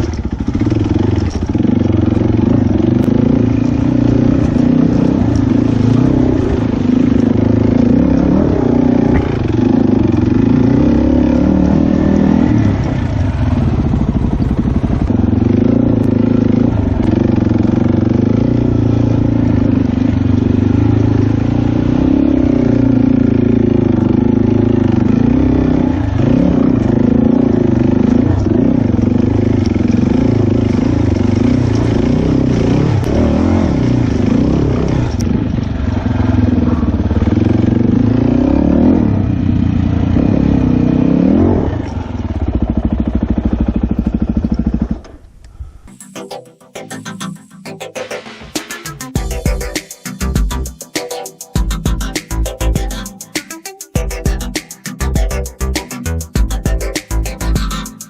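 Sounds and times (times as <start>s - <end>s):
dirt bike engine revving: 0.0s - 45.2s.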